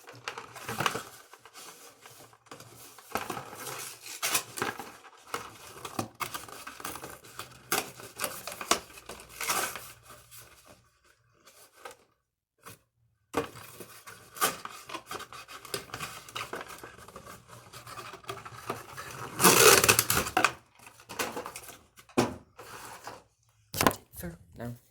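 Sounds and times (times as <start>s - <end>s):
packaging rustling and tearing: 13.6s - 22.0s.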